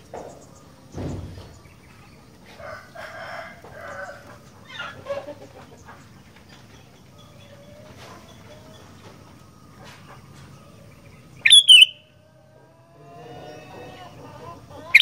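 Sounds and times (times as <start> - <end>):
dull thump: 0.9 - 1.6
rooster crowing: 2.5 - 5.4, 10.8 - 15.0.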